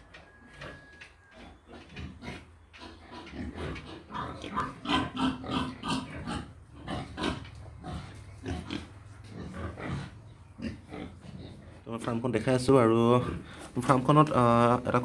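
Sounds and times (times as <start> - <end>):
pigs grunting and squealing: 0.0 - 15.0.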